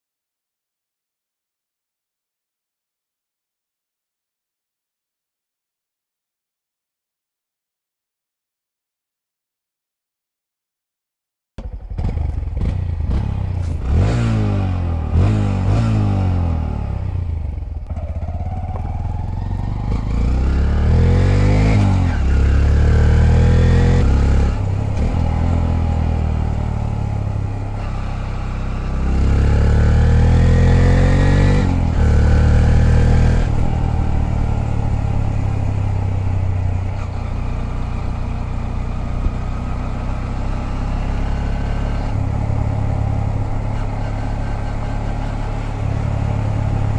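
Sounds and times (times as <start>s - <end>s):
motorcycle engine accelerating: 11.6s - 46.9s.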